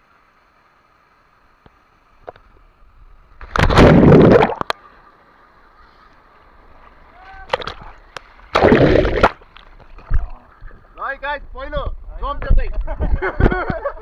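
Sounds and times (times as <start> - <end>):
big splash into water: 3.4 - 4.7, 8.5 - 9.5.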